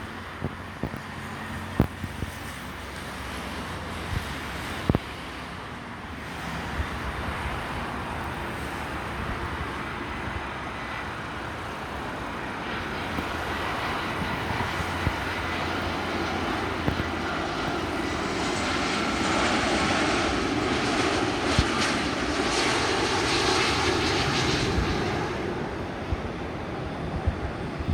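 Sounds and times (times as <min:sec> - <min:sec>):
faint engine whine: 0:00.0 - 0:27.9
jet airliner engine noise: 0:00.0 - 0:27.9.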